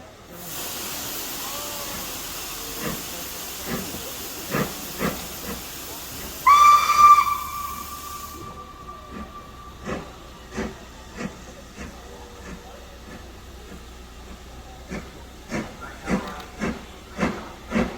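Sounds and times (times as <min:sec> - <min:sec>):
steam locomotive hissing: 0:00.0 - 0:17.9
steam whistle: 0:06.4 - 0:09.8.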